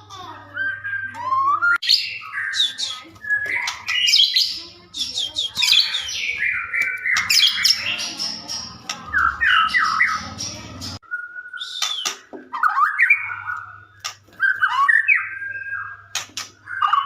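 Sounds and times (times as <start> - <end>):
songbird singing varied whistles: 11.0 - 13.6.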